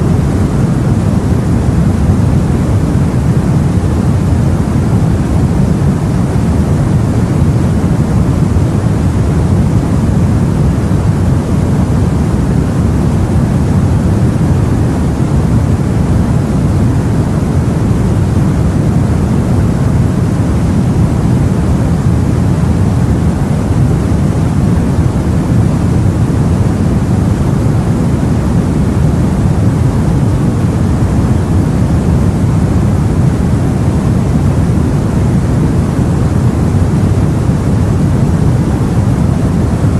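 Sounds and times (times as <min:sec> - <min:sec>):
sea and wind rumble: 0:00.0 - 0:39.9.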